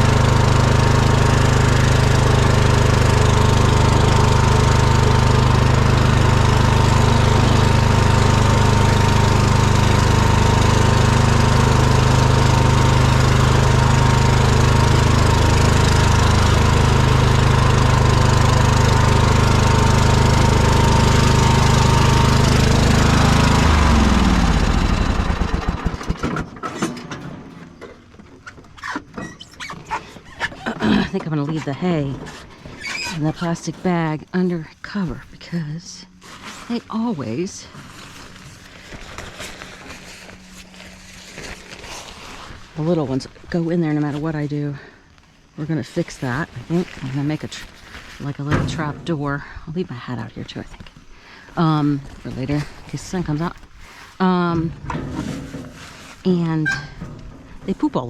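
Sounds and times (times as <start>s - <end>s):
engine winding down: 0.0s - 27.3s
lawn mower engine running: 0.0s - 58.0s.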